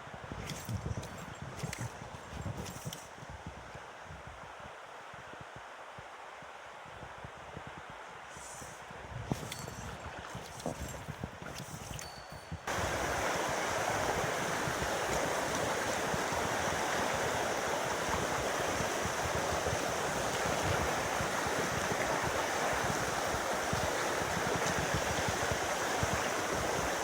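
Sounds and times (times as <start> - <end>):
stream rushing: 12.7 - 27.0.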